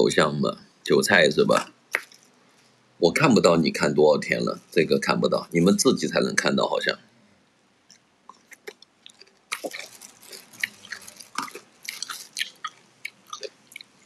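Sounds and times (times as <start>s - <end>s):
person chewing with mouth clicks: 7.9s - 14.0s.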